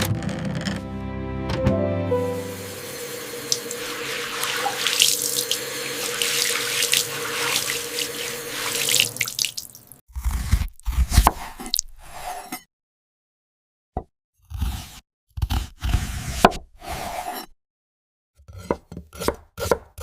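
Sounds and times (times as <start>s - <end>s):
tap water running into sink: 2.4s - 10.0s.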